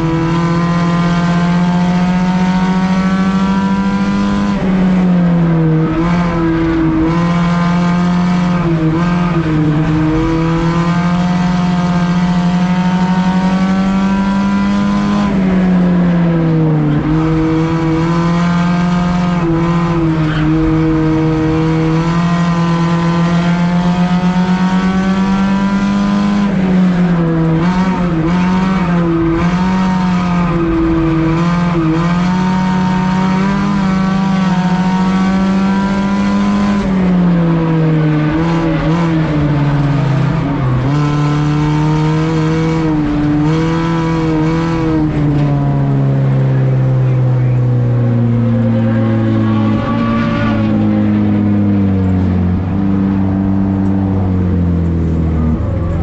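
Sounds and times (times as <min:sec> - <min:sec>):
race car engine running hard: 0:00.0 - 0:56.0.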